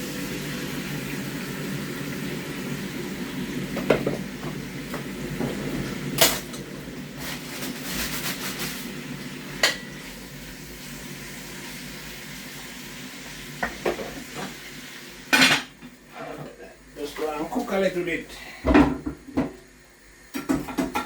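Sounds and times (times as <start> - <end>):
chicken sizzling in oil: 0.0 - 15.8.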